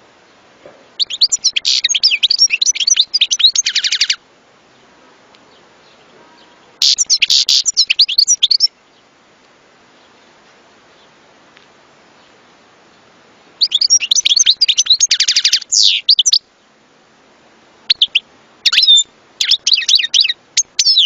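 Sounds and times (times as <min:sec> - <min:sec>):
finch twittering song: 0:00.2 - 0:04.2, 0:05.5 - 0:09.1, 0:12.2 - 0:16.5, 0:17.9 - 0:21.0.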